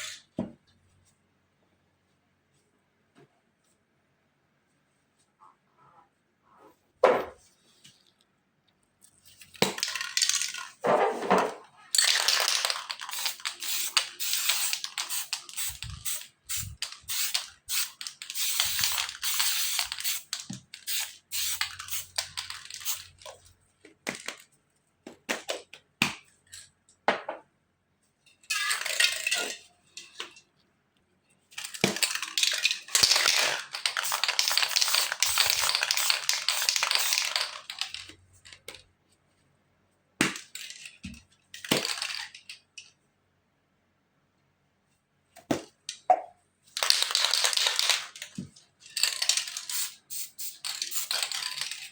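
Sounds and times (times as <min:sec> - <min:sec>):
spray paint cans hissing: 0:12.0 - 0:23.4, 0:31.9 - 0:38.0, 0:46.8 - 0:48.2, 0:49.0 - 0:51.9.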